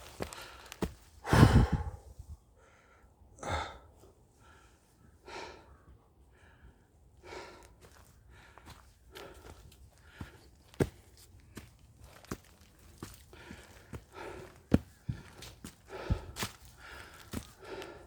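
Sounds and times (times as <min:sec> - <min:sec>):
heavy breathing: 0:00.3 - 0:05.7, 0:13.2 - 0:18.0.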